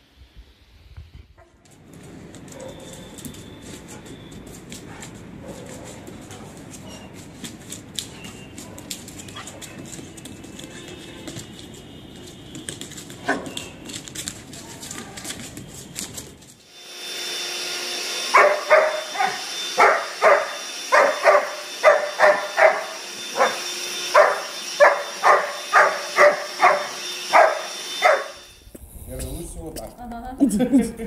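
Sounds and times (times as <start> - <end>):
vacuum cleaner motor hum: 16.7 - 28.8
dog barking rapidly: 18.3 - 28.4.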